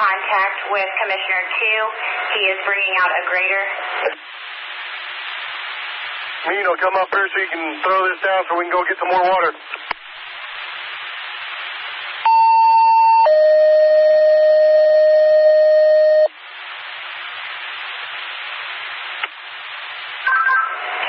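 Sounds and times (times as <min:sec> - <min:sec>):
scanner radio hiss: 0:00.0 - 0:21.0
two-tone dispatch page: 0:12.3 - 0:16.3.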